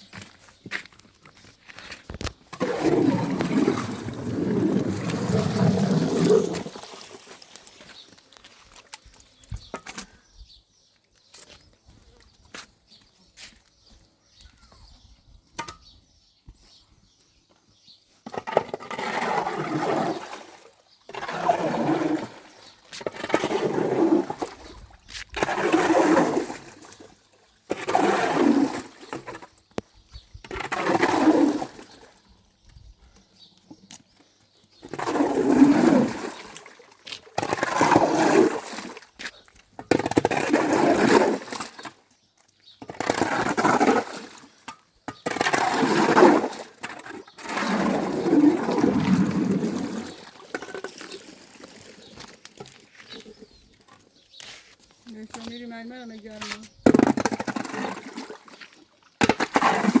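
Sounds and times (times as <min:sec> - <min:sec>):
rushing splashing water: 0:02.6 - 0:08.0.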